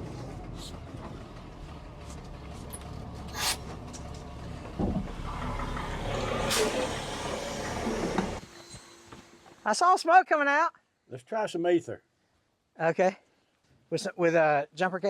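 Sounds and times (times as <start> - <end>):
engine cranking without catching: 0.0 - 8.4
truck engines running under load: 0.0 - 9.6.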